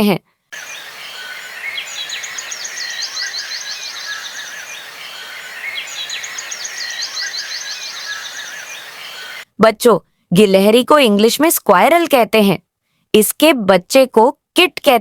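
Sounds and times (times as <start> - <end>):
birds chirping and trilling: 0.5 - 9.5
outdoor background hiss: 0.5 - 15.0.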